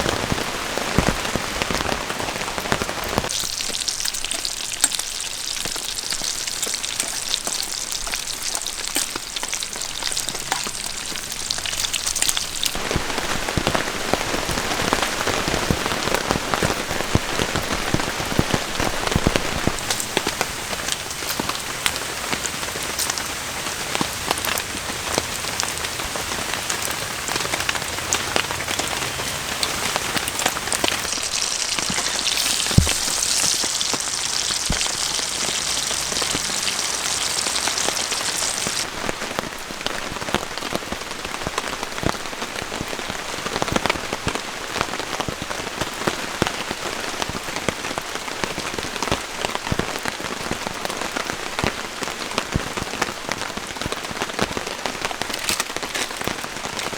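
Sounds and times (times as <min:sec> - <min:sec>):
raindrops pattering: 0:00.0 - 0:56.9
steady rain falling: 0:00.0 - 0:56.9
high hiss: 0:19.5 - 0:38.9.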